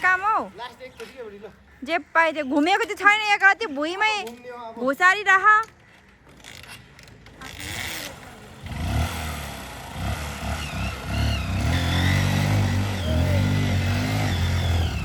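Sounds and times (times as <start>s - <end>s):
vehicle engine running: 7.7s - 15.0s.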